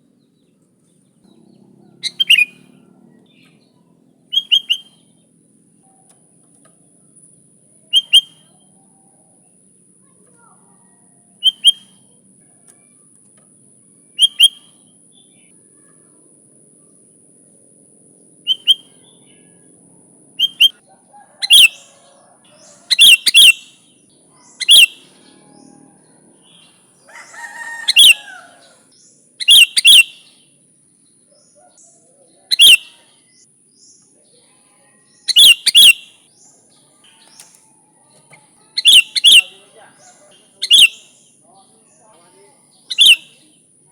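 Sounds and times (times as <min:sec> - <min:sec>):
bulbul chirping: 0:01.2 - 0:05.3, 0:07.9 - 0:08.6, 0:11.4 - 0:12.2, 0:14.1 - 0:15.5, 0:18.4 - 0:19.4, 0:20.4 - 0:20.8, 0:21.4 - 0:21.9, 0:22.5 - 0:25.7, 0:26.4 - 0:30.4, 0:32.5 - 0:34.0, 0:35.2 - 0:37.6, 0:38.3 - 0:41.4, 0:42.8 - 0:43.6.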